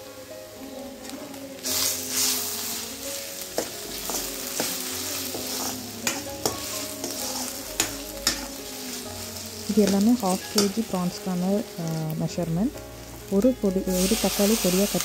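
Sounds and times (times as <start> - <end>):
onions sizzling in oil: 0.0 - 15.0
steel spatula scraping pan: 1.8 - 10.9.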